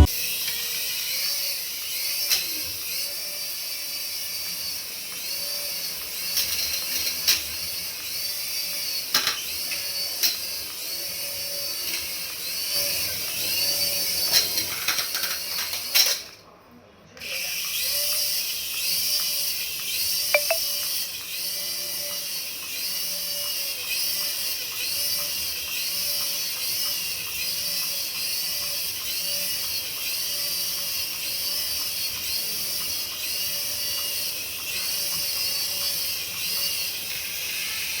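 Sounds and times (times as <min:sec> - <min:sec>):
electronic warbling tone: 0:20.4 - 0:20.6.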